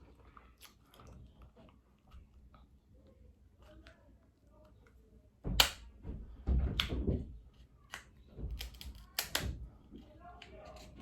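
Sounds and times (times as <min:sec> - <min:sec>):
scissors cutting crab shell: 0:08.6 - 0:09.4.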